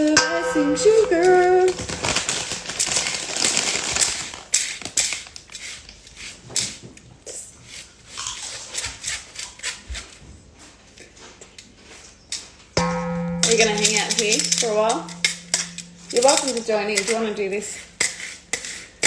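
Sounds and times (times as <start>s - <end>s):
utensils tapping and scraping: 0.0s - 7.0s, 12.0s - 19.0s
sugar sieving rustling hiss: 12.8s - 19.0s.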